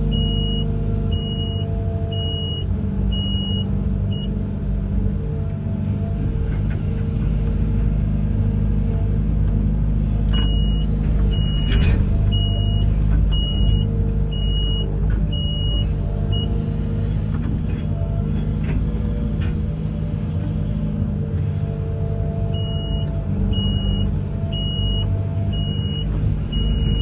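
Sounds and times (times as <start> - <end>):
excavator diesel engine running: 0.0 - 27.0
high-pitched warning alarm beeps: 0.1 - 2.6, 3.2 - 4.3, 10.4 - 16.5, 22.6 - 27.0.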